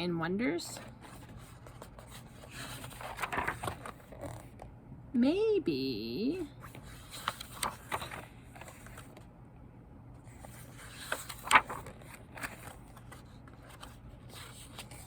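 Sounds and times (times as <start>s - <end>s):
paper pages rustling: 0.7s - 4.6s, 6.6s - 9.3s, 10.2s - 15.0s.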